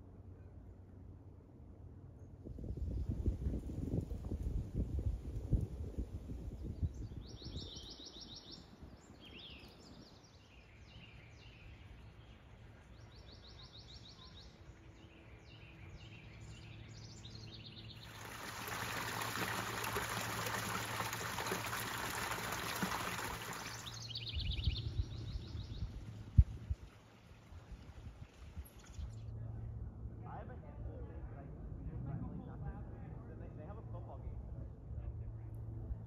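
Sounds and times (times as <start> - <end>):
small birds chirping: 6.7 - 26.4.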